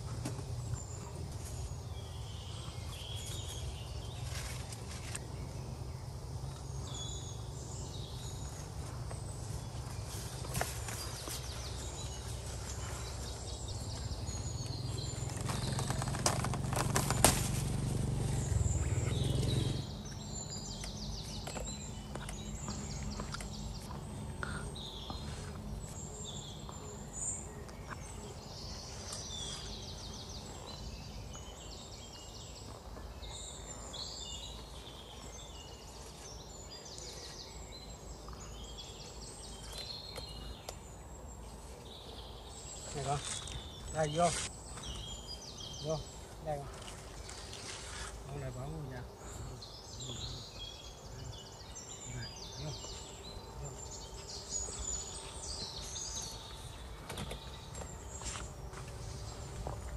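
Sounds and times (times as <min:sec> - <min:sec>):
small birds chirping: 0:00.0 - 0:59.9
low rumbling noise: 0:11.6 - 0:27.6.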